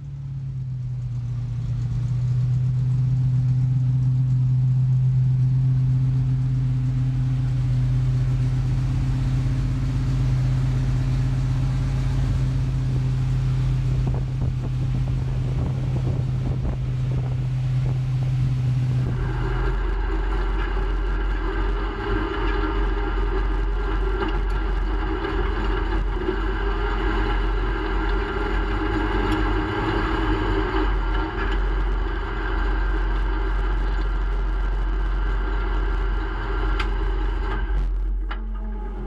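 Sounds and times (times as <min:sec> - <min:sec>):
car engine rumbling at low revs: 0:00.0 - 0:39.0.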